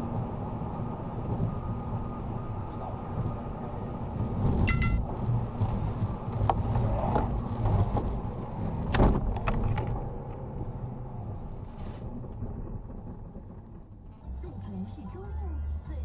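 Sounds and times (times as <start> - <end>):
vehicle and road rumble: 0.0 - 16.0
brief tone: 4.7 - 5.0.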